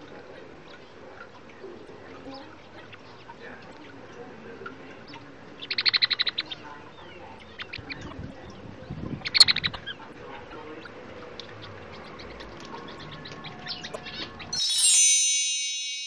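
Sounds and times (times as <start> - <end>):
quail calling: 5.1 - 6.7.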